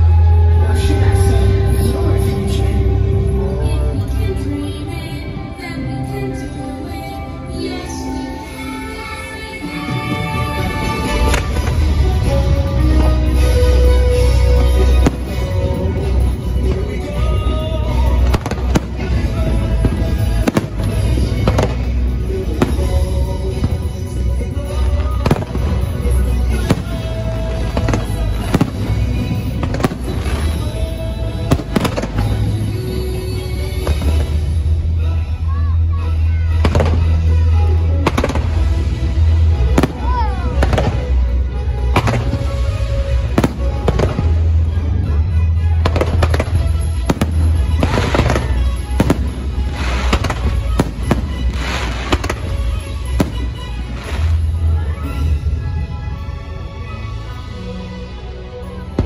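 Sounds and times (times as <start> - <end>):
show music playing: 0.0 - 59.0
fireworks crackling bursts: 8.5 - 35.1, 36.4 - 56.2
fireworks bangs: 9.9 - 34.6, 36.6 - 37.2, 38.0 - 41.2, 41.9 - 44.5, 45.8 - 54.8.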